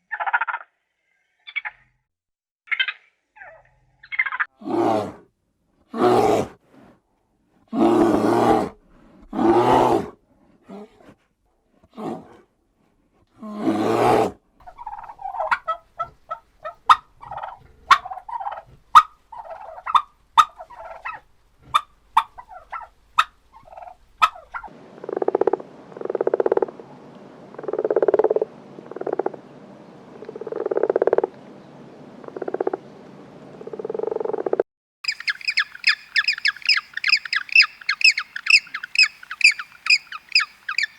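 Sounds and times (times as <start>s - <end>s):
animal calls: 35.0s - 40.9s.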